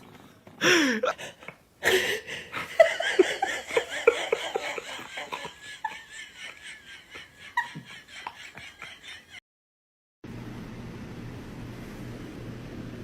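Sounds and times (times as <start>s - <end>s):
person laughing: 0.6s - 9.4s.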